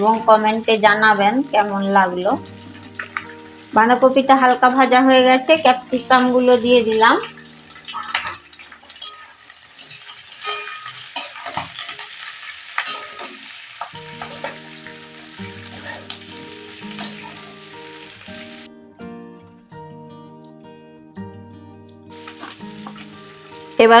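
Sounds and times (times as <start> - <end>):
background music: 0.0 - 11.3, 12.1 - 24.0
vegetables sizzling in oil: 0.0 - 18.7, 22.1 - 24.0
spatula clacking and scraping: 7.8 - 14.6, 15.6 - 17.5.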